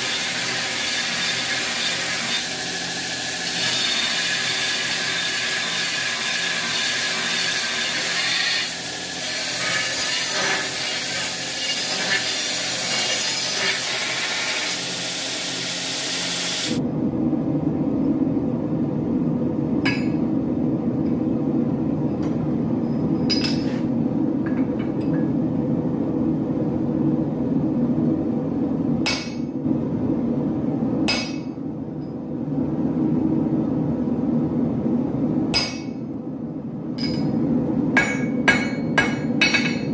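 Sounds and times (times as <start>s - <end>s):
power tool hissing: 0.0s - 16.8s.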